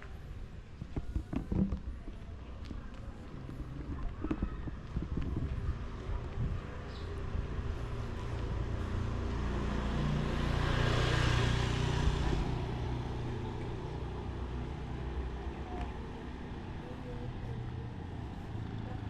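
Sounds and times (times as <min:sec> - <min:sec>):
motor vehicle passing by: 0:03.3 - 0:19.0.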